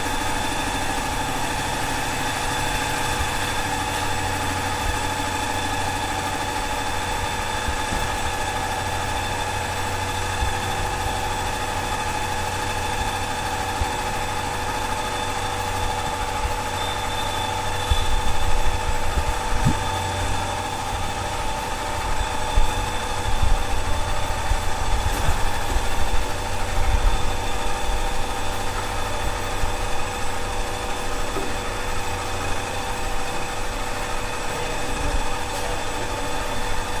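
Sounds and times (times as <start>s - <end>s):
truck engine idling: 0.0s - 37.0s.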